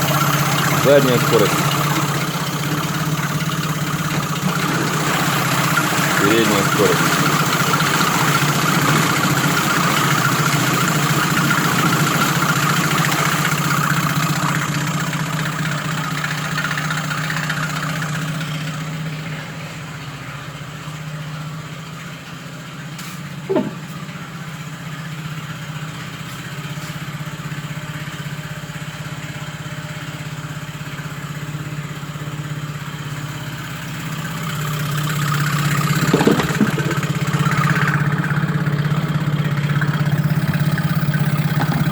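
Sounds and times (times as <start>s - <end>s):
outboard motor idling: 0.0s - 41.9s
short knock: 23.5s - 24.0s, 36.0s - 37.1s.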